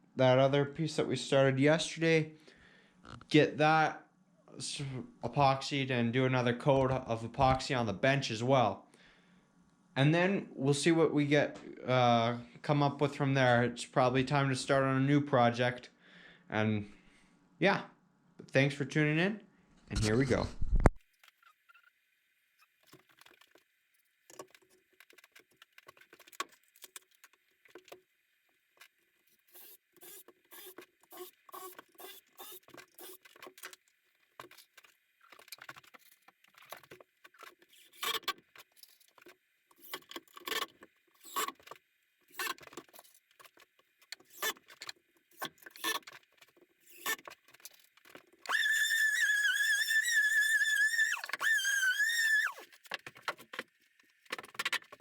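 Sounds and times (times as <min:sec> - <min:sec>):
power tool motor whining: 0:48.5 - 0:52.6.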